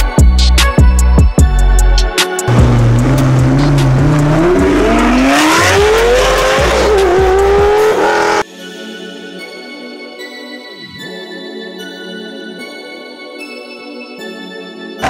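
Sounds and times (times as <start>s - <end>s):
background music: 0.0s - 15.0s
sports car accelerating hard: 2.5s - 8.4s.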